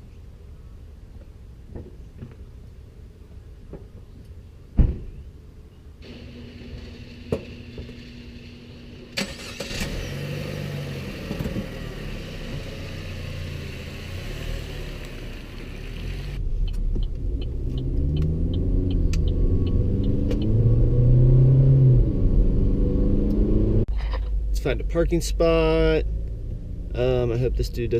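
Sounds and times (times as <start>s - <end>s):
car engine and road rumble: 0.0s - 27.9s
regular ticking: 16.6s - 20.6s.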